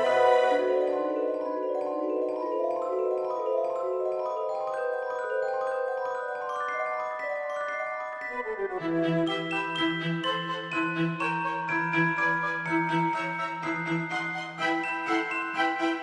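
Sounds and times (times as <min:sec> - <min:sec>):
mallet percussion music: 0:09.3 - 0:16.0.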